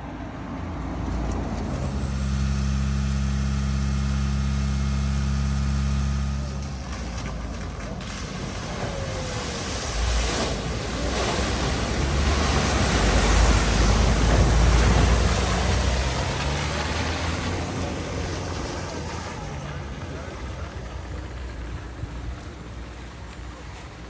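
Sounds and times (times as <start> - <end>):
car engine rumbling: 0.0 - 24.0
water splashing: 6.8 - 21.0.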